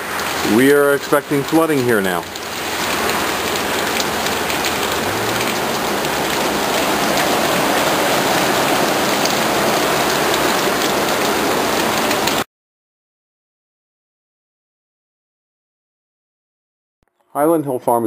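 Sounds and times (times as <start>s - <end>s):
heavy rain downpour: 0.0s - 12.5s.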